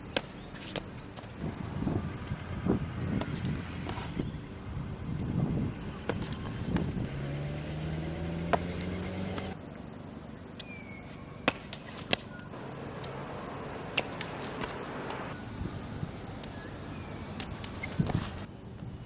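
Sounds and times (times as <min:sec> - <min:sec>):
passing vehicle engine hum: 0:01.4 - 0:10.5, 0:12.4 - 0:15.7.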